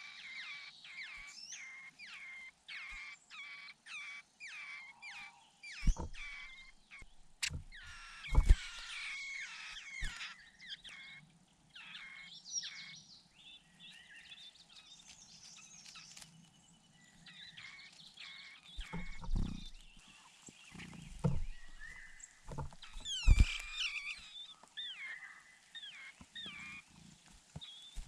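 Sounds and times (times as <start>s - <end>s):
bird chicks chirping: 0.0s - 28.0s
sharp knocks: 5.8s - 8.8s, 18.8s - 20.0s, 21.1s - 23.9s.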